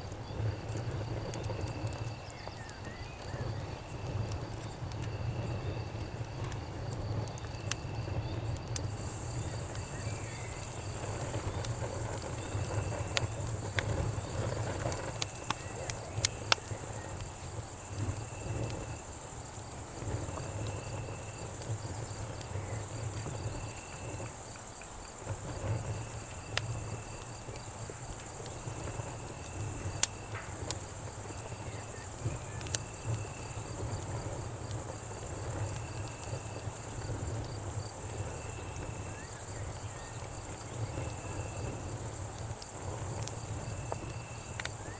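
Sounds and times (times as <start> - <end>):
cricket chirp trills: 0.0 - 44.9
night insects chorus: 0.0 - 44.9
campfire crackling and popping: 6.0 - 44.9.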